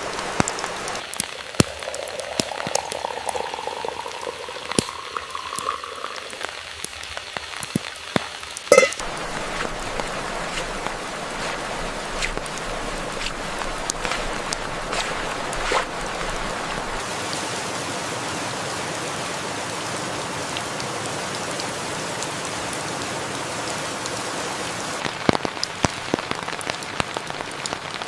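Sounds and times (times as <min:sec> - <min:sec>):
rain pattering: 0:00.0 - 0:28.0
liquid pouring into a cup: 0:01.2 - 0:07.0
ringing clink: 0:08.7 - 0:09.0.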